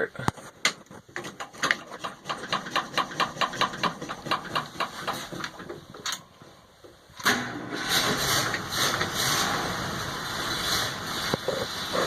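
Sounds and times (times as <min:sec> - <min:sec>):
starter cranking engine: 0:01.2 - 0:05.8
engine running: 0:07.2 - 0:12.0.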